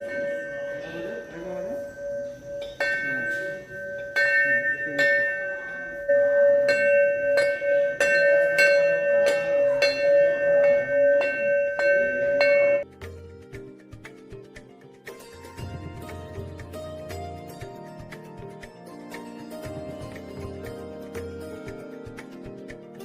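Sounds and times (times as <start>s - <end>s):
metal bell ringing: 0.0s - 12.8s.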